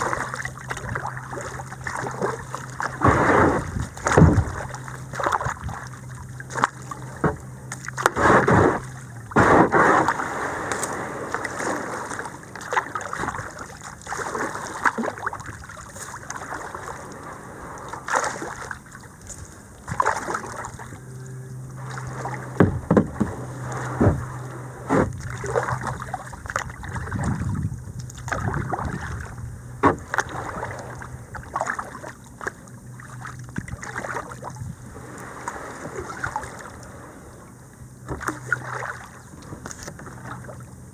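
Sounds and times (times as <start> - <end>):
paddle splashing in water: 0.0 - 37.4, 38.0 - 40.7
knocks and bumps: 22.6 - 25.2.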